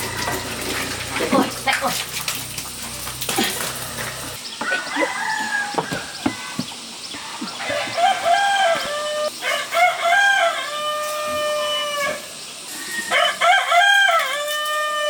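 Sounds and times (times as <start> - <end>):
rooster crowing: 0.0 - 0.8, 3.8 - 6.6, 7.5 - 15.0.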